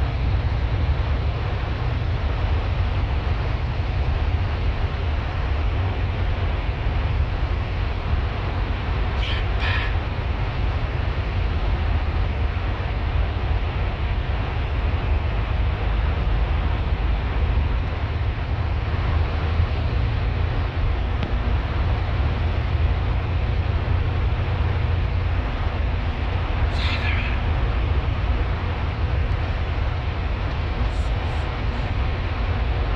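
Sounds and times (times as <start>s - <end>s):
bus engine and road rumble: 0.0s - 32.9s
even hiss: 26.7s - 27.6s.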